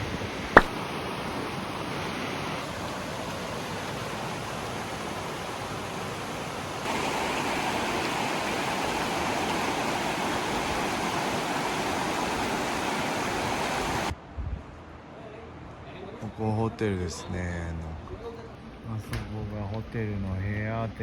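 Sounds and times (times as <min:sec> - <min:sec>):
river rushing: 0:00.0 - 0:14.1.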